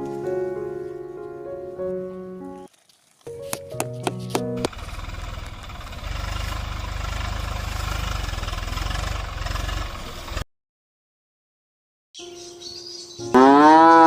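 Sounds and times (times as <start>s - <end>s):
tractor diesel engine chugging: 3.9s - 10.4s.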